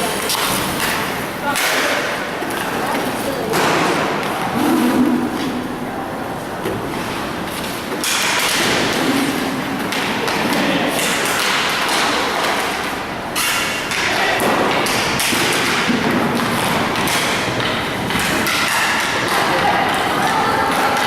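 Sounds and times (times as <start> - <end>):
sticks and puck clacking: 0.0 - 5.7, 6.6 - 21.0
skate wheels rolling: 0.0 - 21.0.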